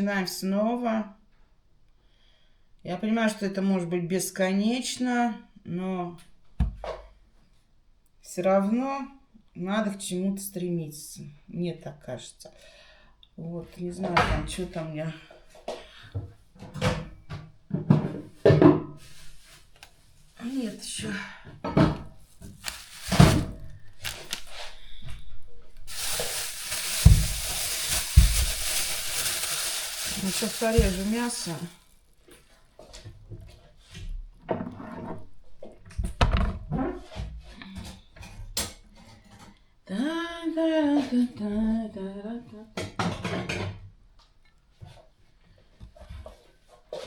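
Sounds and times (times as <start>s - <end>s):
kitchen knocks and clatters: 16.6s - 18.9s, 42.8s - 43.9s
food sizzling in a pan: 25.9s - 31.8s.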